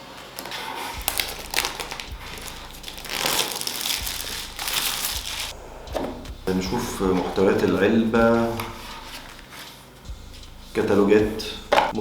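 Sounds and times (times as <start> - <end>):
packaging crinkling and rustling: 0.0 - 5.5.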